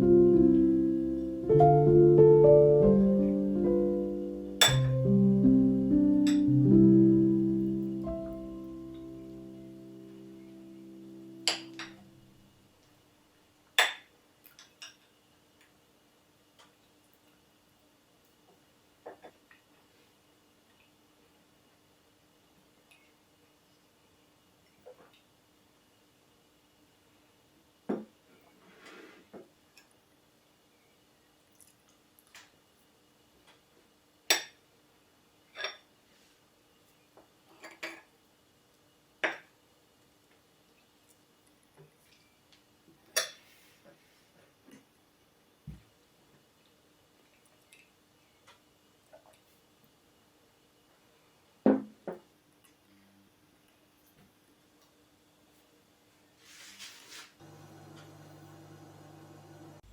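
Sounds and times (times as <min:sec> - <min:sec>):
background music: 0:00.0 - 0:12.3
faint steady hum: 0:00.0 - 0:14.6, 0:57.4 - 0:59.9.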